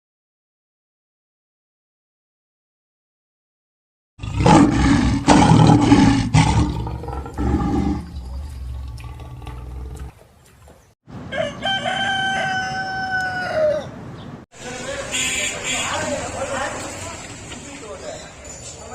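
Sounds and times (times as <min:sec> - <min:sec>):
lion roaring: 0:04.2 - 0:10.2
rooster crowing: 0:11.3 - 0:14.0.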